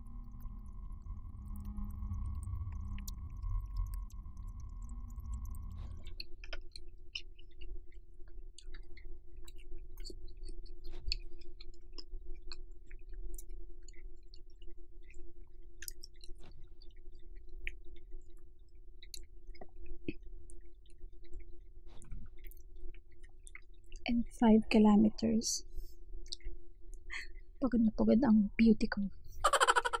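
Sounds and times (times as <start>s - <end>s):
steady low hum: 0.0s - 29.4s
chewing mouth clicks: 2.7s - 15.2s, 15.8s - 18.4s.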